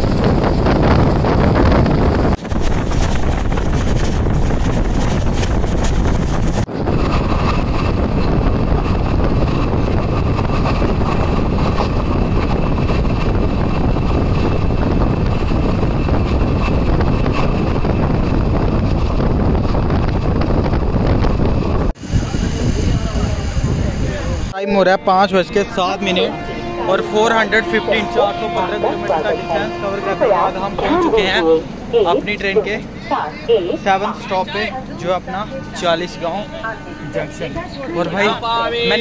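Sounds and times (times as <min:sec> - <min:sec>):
wind buffeting microphone: 0:00.0 - 0:24.6
train running on track: 0:00.0 - 0:39.0.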